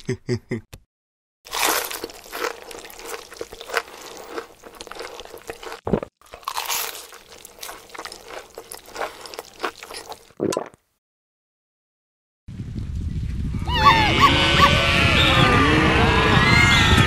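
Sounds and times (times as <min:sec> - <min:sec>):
crunchy chewing of corn: 0:01.5 - 0:10.4.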